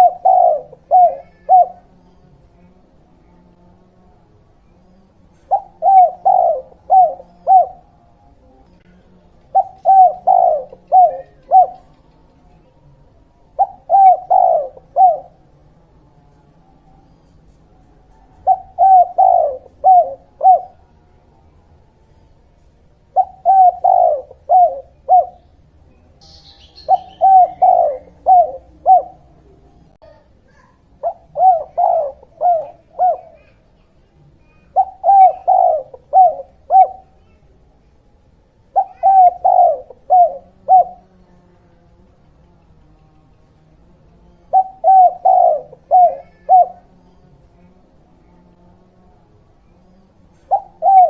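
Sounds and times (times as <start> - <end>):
dove cooing: 0.0 - 2.3, 4.6 - 15.7, 16.6 - 37.6, 38.5 - 41.2, 42.0 - 48.5, 49.6 - 51.0
bird chirp: 4.6 - 12.9, 13.6 - 15.3, 23.2 - 29.9, 31.0 - 37.4.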